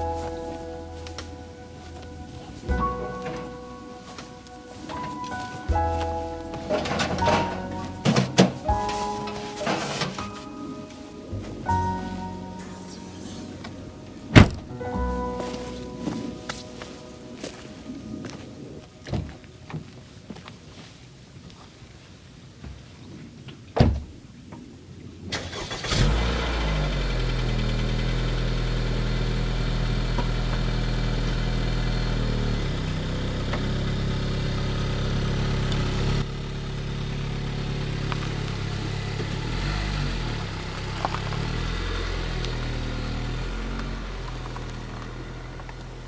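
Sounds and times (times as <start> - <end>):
car engine humming: 0.0 - 20.0, 25.4 - 46.0
car door shutting: 13.3 - 14.8.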